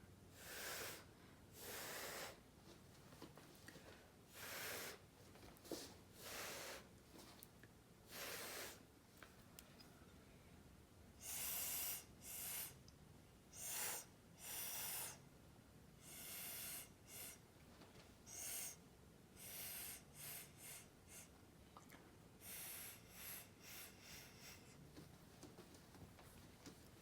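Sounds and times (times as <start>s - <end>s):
puffs of breath blown: 0.3s - 2.4s, 4.3s - 5.1s, 6.2s - 6.9s, 8.1s - 8.9s, 11.2s - 12.8s, 13.5s - 15.3s, 16.0s - 17.5s, 18.3s - 21.4s, 22.4s - 24.8s.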